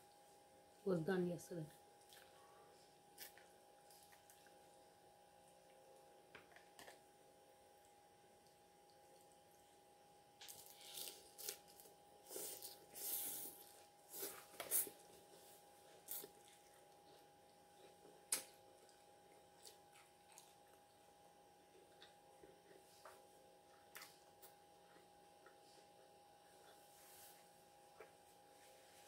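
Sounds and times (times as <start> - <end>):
lettuce crunching and chewing: 10.4 - 15.0, 17.8 - 21.0.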